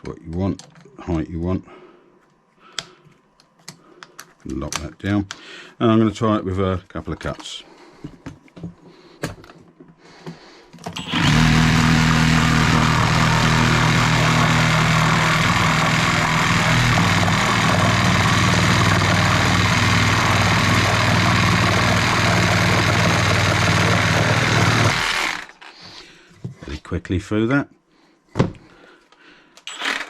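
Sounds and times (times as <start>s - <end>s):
reciprocating saw cutting wood: 11.0s - 25.6s.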